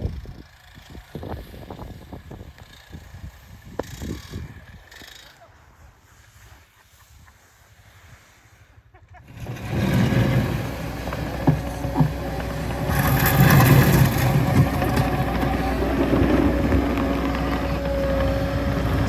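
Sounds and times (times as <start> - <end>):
crunching and scraping snow: 2.7 - 19.0
skid steer engine: 9.3 - 19.0.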